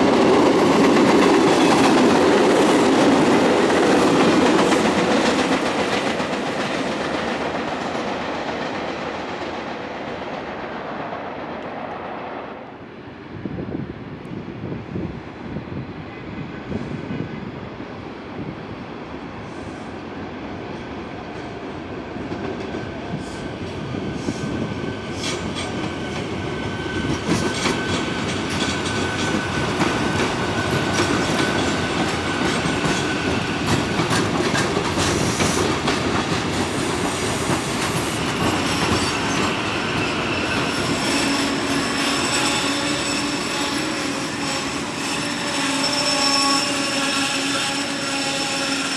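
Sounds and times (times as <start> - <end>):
train wheels rumbling: 0.0 - 13.2, 16.1 - 48.9
high whine or squeal: 36.7 - 48.9.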